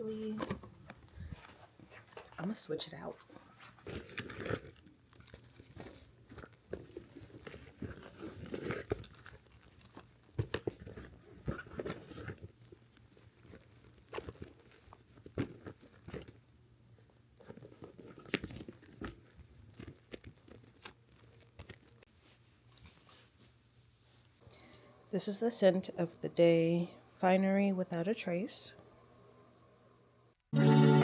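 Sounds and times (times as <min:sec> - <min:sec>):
handbag contents rustling: 0:00.2 - 0:23.6.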